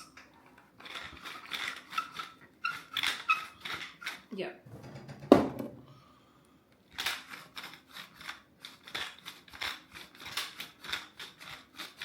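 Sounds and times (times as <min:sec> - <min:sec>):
salt and pepper grinders clicking: 0:07.0 - 0:12.0.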